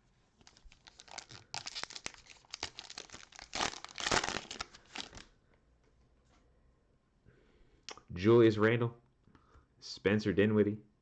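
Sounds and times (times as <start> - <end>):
cellophane wrapper crinkling: 0.4 - 5.3.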